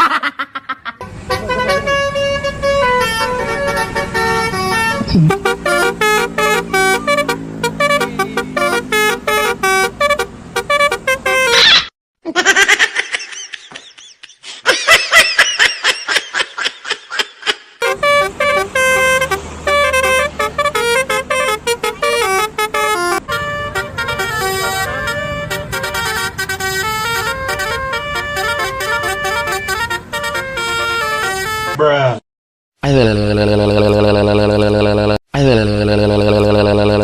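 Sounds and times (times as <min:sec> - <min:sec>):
multi-tone bus horn melody: 0:01.0 - 0:11.9, 0:17.8 - 0:31.9, 0:33.2 - 0:37.0.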